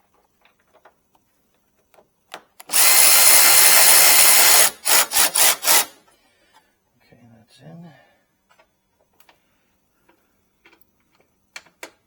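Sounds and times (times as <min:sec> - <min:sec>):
cordless drill driving a bolt: 0:02.6 - 0:06.0.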